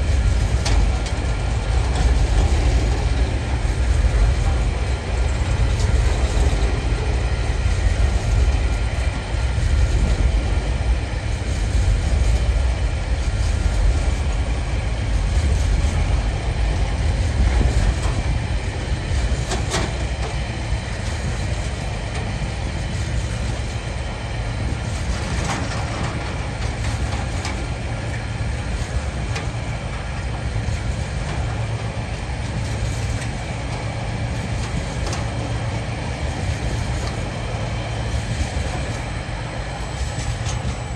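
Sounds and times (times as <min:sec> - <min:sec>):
freight train wheels rumbling: 0:00.0 - 0:40.9.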